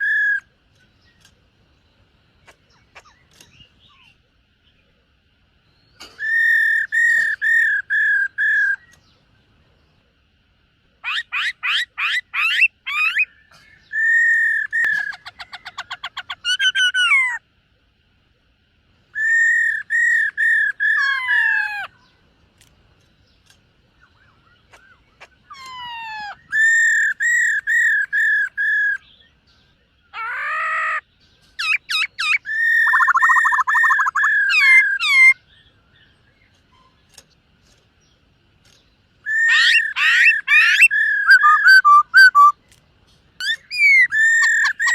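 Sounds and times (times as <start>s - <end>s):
bird singing whistled trilled notes: 5.6s - 9.2s, 19.1s - 21.4s, 31.2s - 36.9s, 39.2s - 42.6s, 43.4s - 44.9s.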